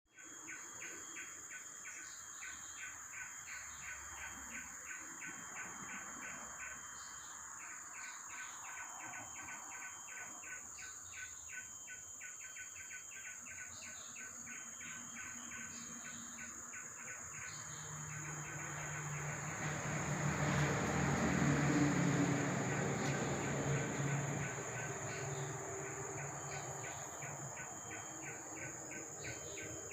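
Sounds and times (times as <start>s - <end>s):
high insect whine: 0.2s - 29.9s
low engine hum: 17.4s - 29.9s
rushing noise: 18.0s - 27.6s.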